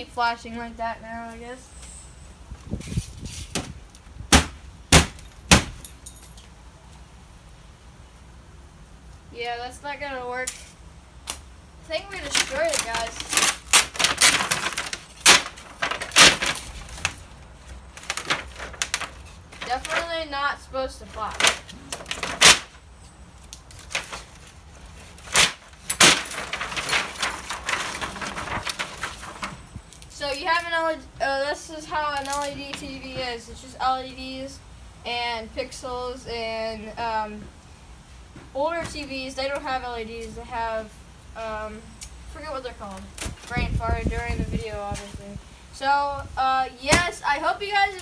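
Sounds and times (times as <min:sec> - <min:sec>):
knocks on broken glass panel: 0:04.3 - 0:06.0
rattles: 0:23.7 - 0:29.8.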